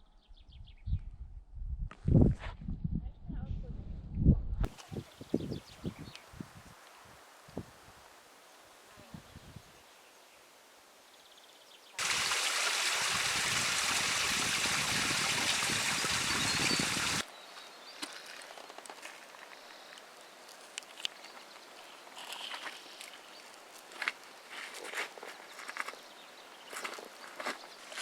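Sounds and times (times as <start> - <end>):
rushing mountain stream: 12.0 - 17.2.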